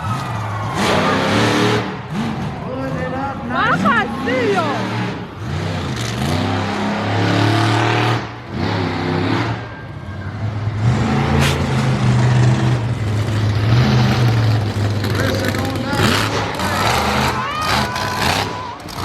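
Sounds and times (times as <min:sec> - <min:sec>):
monster truck engine revving: 0:00.0 - 0:19.0.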